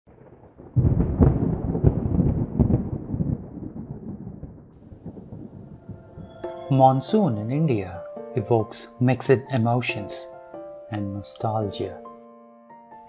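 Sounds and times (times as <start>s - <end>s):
thunderclap crack and rumble: 0.1s - 7.2s.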